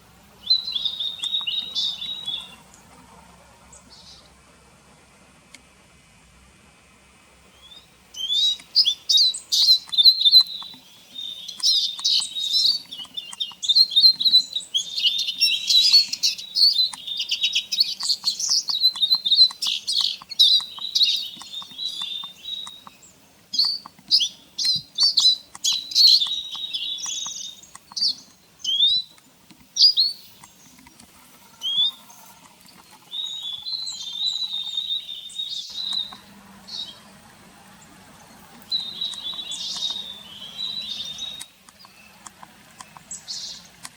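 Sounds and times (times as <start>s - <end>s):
bird twittering song: 0.0s - 2.9s, 3.7s - 4.3s, 7.5s - 43.9s.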